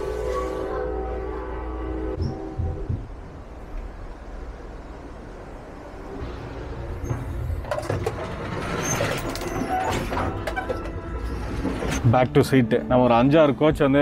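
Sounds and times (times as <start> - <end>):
train low rumble: 0.0 - 14.0
clattering and rattling: 6.9 - 12.0.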